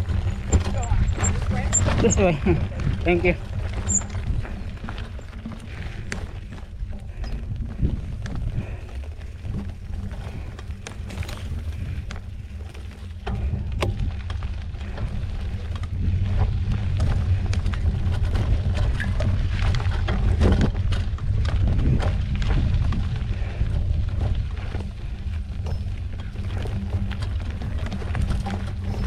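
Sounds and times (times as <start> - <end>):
bike rattling and clicking: 0.0 - 29.0
wind rumbling on microphone: 0.0 - 29.0.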